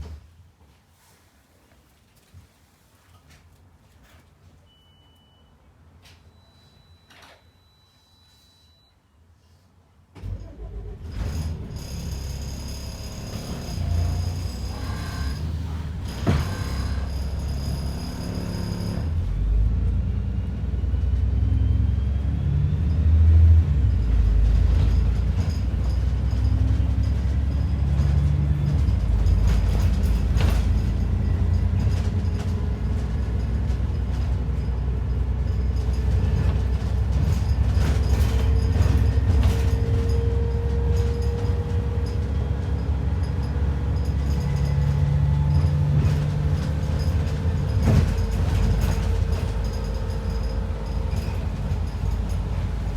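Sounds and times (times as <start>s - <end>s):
bus engine and road rumble: 10.1s - 52.9s
rattles and clicks: 24.2s - 52.9s.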